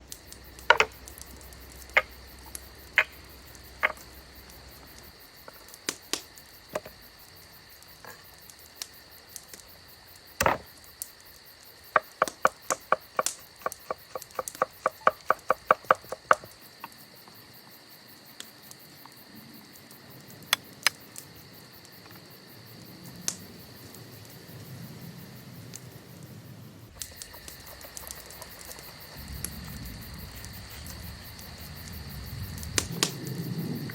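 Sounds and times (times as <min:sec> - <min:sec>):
crickets chirring: 0:00.0 - 0:33.9
sharp knocks and clicks: 0:00.6 - 0:03.2, 0:03.8 - 0:04.1, 0:10.4 - 0:10.7, 0:11.9 - 0:16.6.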